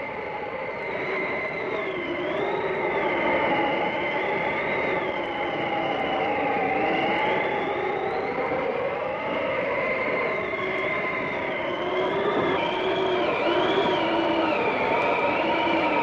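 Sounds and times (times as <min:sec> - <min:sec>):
howling blizzard wind: 0:00.0 - 0:16.0.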